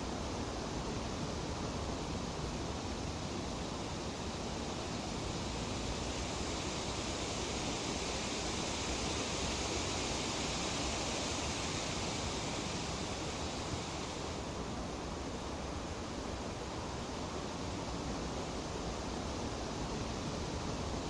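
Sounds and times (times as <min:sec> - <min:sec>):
wind rustling tree leaves: 0:01.6 - 0:21.0.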